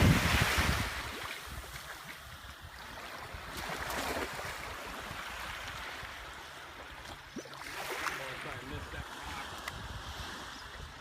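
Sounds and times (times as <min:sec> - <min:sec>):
surf washing against rocks: 0:00.0 - 0:02.3.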